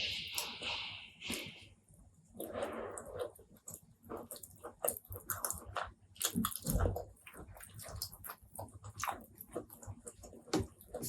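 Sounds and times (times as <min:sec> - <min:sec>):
wet chewing: 0:02.4 - 0:11.0.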